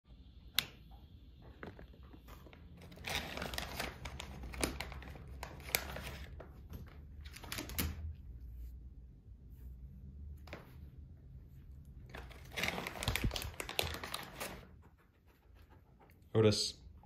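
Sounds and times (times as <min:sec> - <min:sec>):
plastic bags crinkling: 0:02.8 - 0:06.4, 0:12.1 - 0:14.6.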